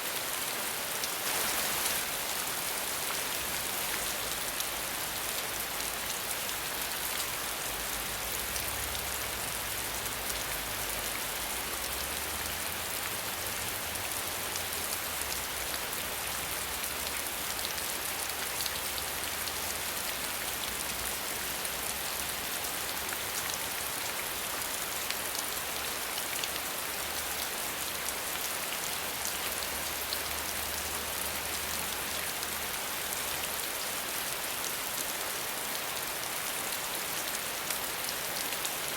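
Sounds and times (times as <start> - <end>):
steady rain hiss: 0.0 - 38.9
raindrops pattering: 1.0 - 9.4.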